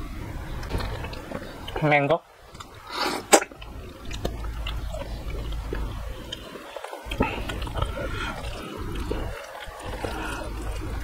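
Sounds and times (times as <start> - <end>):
wet chewing with clicks: 0.6 - 1.9, 2.5 - 11.0
mouth smacks: 2.6 - 11.0.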